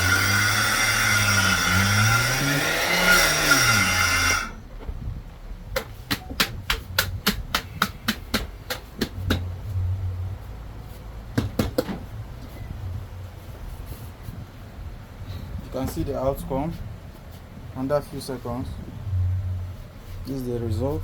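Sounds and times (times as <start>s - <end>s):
grinding machine running: 0.0s - 4.7s
sharp knocks and clicks: 5.7s - 9.5s.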